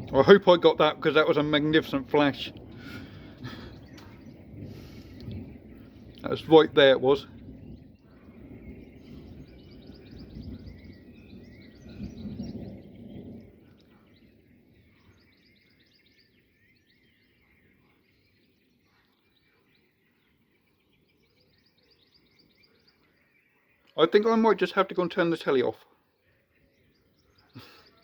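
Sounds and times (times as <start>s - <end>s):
rolling thunder: 0.0s - 17.8s
birds chirping: 0.0s - 28.0s.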